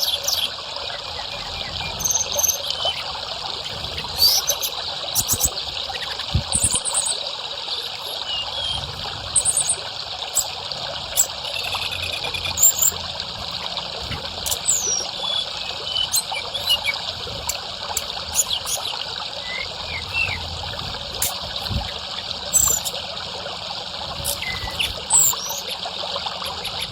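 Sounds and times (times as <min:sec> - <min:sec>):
water trickling: 0:00.0 - 0:26.9
bird chirps and whistles: 0:01.3 - 0:03.1, 0:04.2 - 0:09.8, 0:11.2 - 0:13.0, 0:14.1 - 0:17.0, 0:18.3 - 0:20.4, 0:21.2 - 0:23.0, 0:24.2 - 0:25.8.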